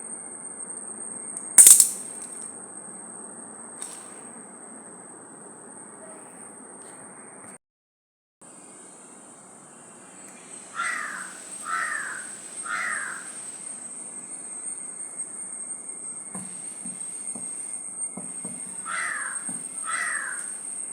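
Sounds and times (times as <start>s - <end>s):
crow cawing: 10.7s - 13.3s, 18.8s - 20.6s.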